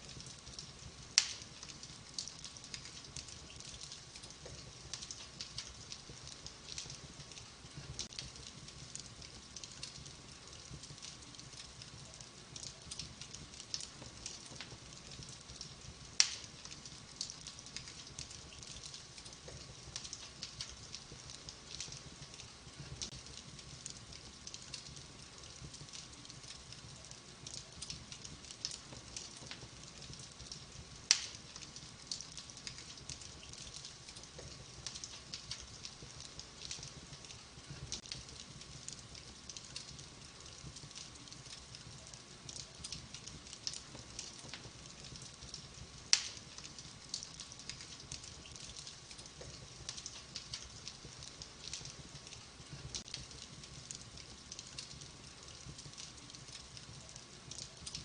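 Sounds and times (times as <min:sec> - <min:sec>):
wood fire crackling: 0:00.0 - 0:58.0
sharp fire pops: 0:00.1 - 0:56.9.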